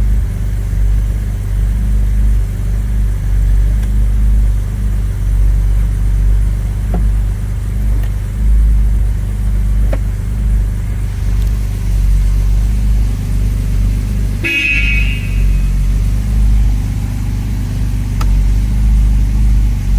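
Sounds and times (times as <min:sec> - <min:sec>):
car engine idling: 0:00.0 - 0:19.9
car horn toot: 0:13.8 - 0:18.4.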